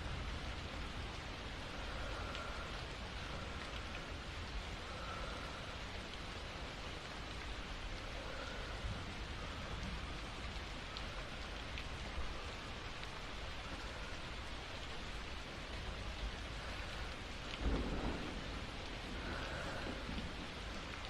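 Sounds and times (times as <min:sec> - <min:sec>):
steady rain: 0:00.0 - 0:21.0
thunder rumbling: 0:16.5 - 0:21.0.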